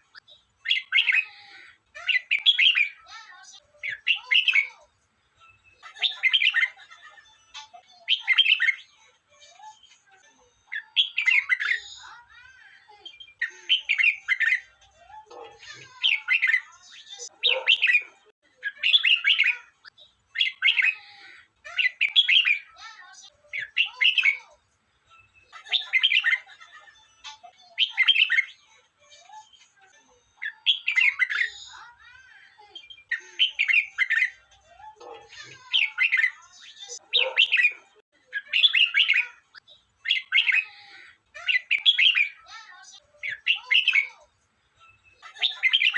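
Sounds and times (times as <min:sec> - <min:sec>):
bulbul singing: 0:32.6 - 0:39.4.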